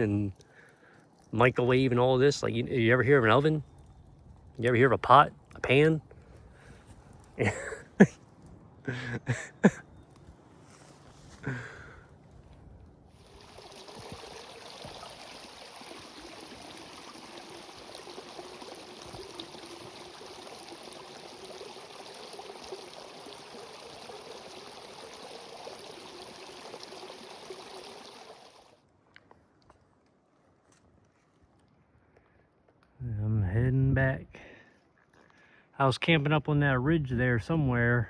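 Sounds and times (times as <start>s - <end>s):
stream water rushing: 13.2s - 28.8s.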